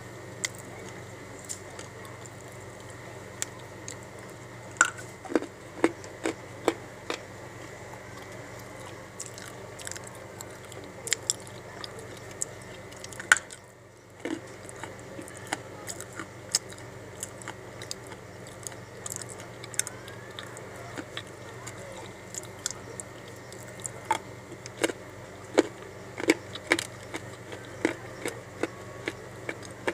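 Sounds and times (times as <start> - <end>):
clay being bitten and chewed: 8.2 - 29.9.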